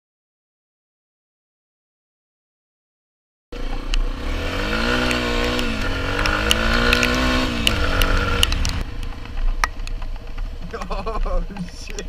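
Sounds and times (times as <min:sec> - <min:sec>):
motorcycle engine revving: 0:03.6 - 0:10.8
sharp ticks: 0:04.8 - 0:12.0.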